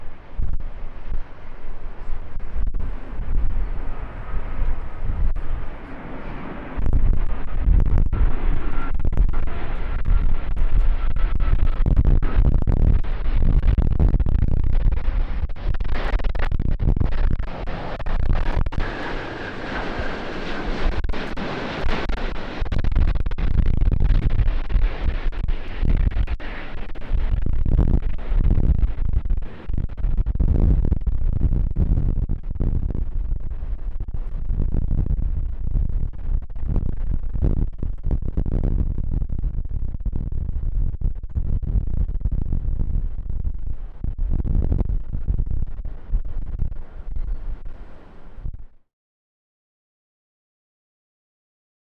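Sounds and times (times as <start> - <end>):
jet engines rumbling: 0.0 - 31.8, 42.5 - 48.6
faint steady whine: 0.0 - 48.8
wind buffeting microphone: 0.0 - 48.8.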